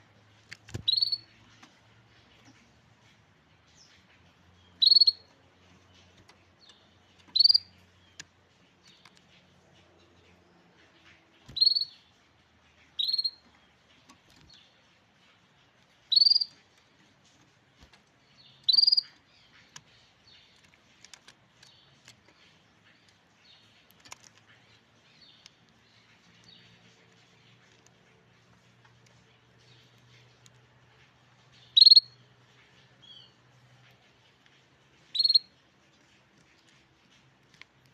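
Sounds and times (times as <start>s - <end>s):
soft bird chirps: 0.0s - 37.9s
canary calling: 0.8s - 1.6s, 3.9s - 8.3s, 10.8s - 16.8s, 18.3s - 27.7s, 31.5s - 33.4s, 35.0s - 37.1s.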